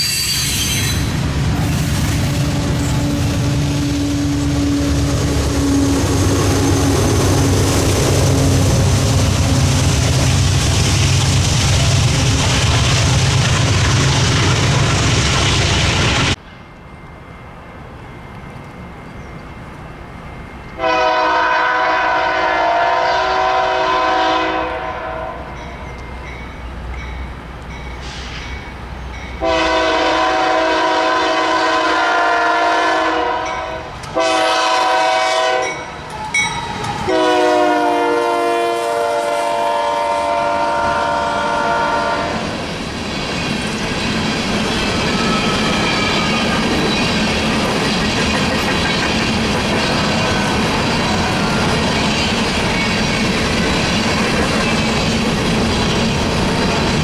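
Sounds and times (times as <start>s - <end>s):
train rushing: 0.0s - 57.0s
locomotive air horn: 20.8s - 25.5s, 29.4s - 35.8s, 37.1s - 42.6s.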